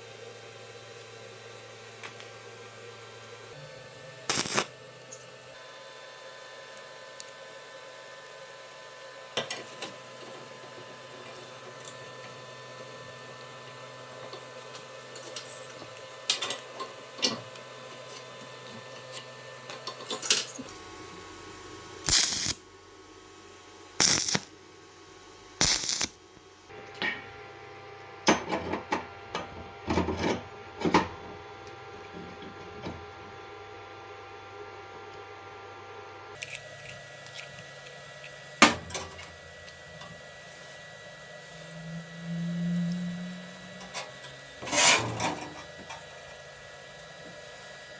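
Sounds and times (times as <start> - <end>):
steady hum: 3.5 - 5.2, 19.8 - 27.8.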